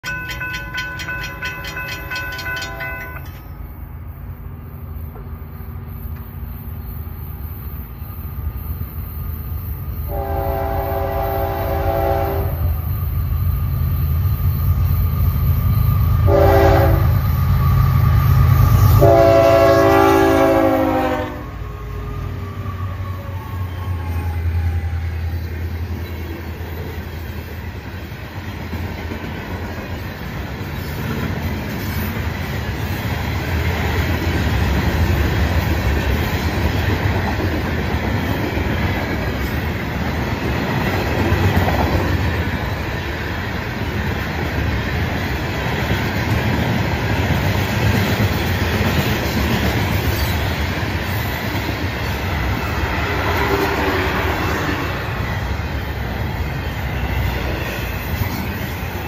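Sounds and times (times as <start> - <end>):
freight cars clickety-clack: 0.0 - 3.6, 25.9 - 59.0
railroad crossing bell: 0.0 - 3.9
train horn blasts: 2.3 - 3.4, 10.1 - 12.8, 16.2 - 17.3, 18.8 - 21.6.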